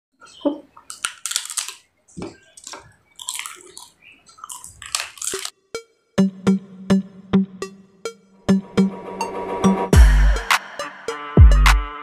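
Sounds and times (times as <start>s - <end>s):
wet mouth eating sounds: 0.4s - 5.5s
papad crunching: 0.7s - 5.5s.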